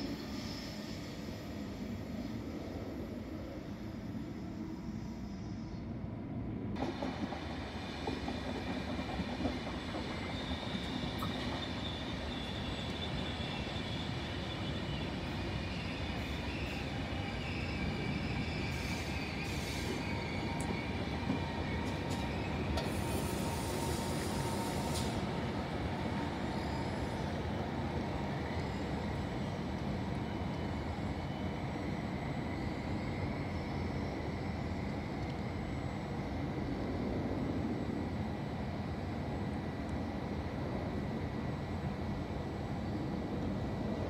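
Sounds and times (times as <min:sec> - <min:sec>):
train rumbling: 0:06.5 - 0:44.0
faint wheel squeal: 0:09.5 - 0:25.3, 0:26.4 - 0:27.4.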